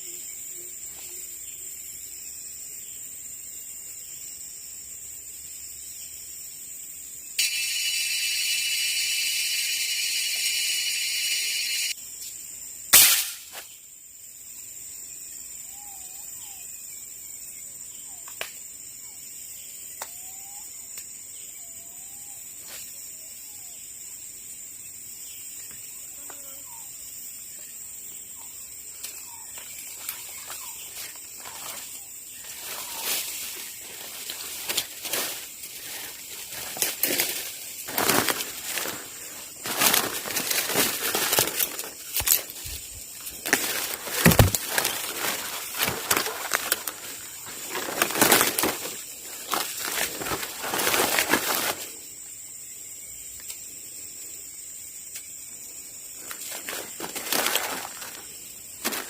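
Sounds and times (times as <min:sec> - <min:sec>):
loud insect drone: 0:00.0 - 0:59.0
sharp crack: 0:12.9 - 0:13.7
rustling: 0:30.0 - 0:51.9, 0:56.3 - 0:59.0.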